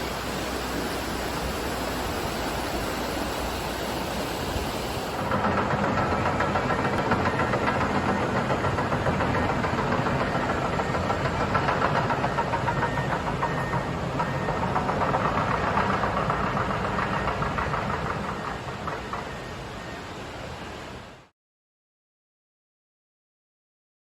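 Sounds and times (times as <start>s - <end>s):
floodwater rushing: 0.0s - 5.5s.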